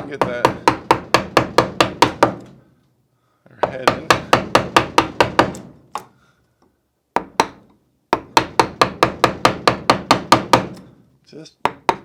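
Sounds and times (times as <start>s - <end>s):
mallet tapping carving gouge into wood: 0.0s - 2.6s, 3.6s - 6.1s, 7.1s - 10.9s, 11.6s - 12.0s.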